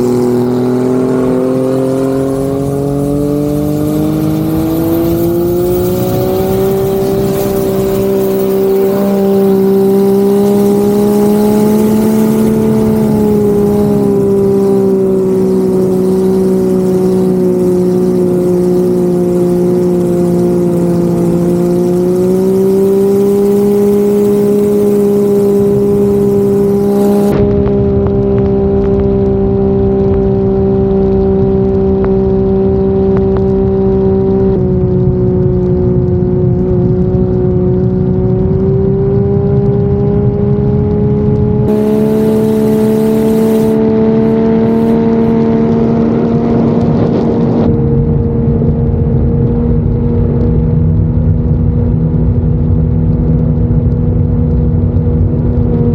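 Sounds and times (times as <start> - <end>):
boat engine droning at high revs: 0.0 - 53.1
rushing water noise: 41.7 - 45.3.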